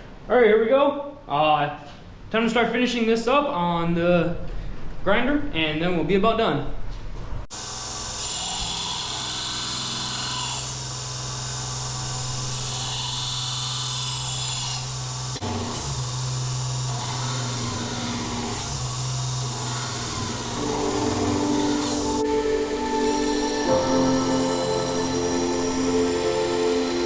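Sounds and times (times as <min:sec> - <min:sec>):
grinder motor hum: 0:07.5 - 0:27.0
metal grinding hiss: 0:07.6 - 0:27.0.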